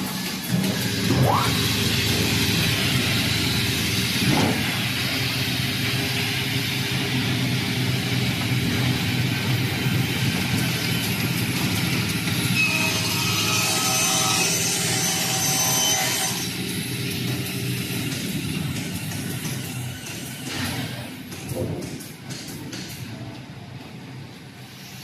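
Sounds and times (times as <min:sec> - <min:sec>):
table saw running: 0:00.1 - 0:18.2.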